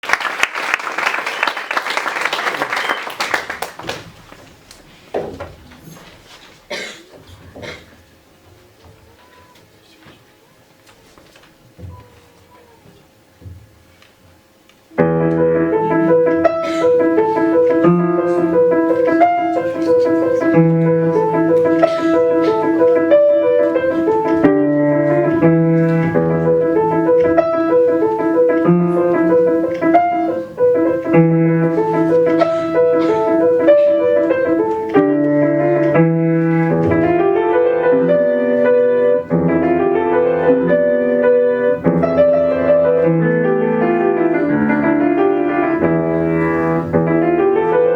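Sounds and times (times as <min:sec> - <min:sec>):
solo piano melody: 0:14.9 - 0:47.9.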